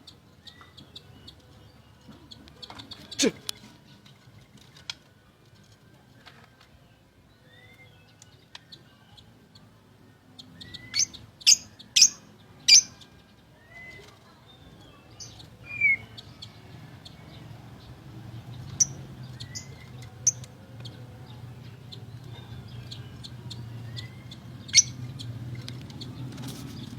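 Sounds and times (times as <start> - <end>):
bird singing whistles: 7.4 - 8.1, 10.6 - 12.9, 13.6 - 14.1, 15.6 - 16.2, 23.6 - 25.0.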